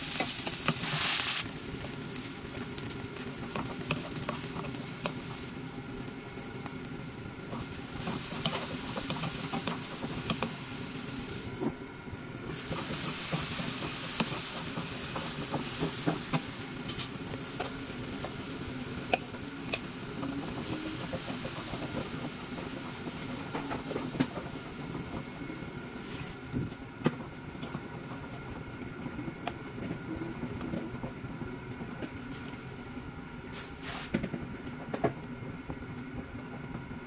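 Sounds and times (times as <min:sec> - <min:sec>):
vegetables sizzling in oil: 0:00.0 - 0:28.5.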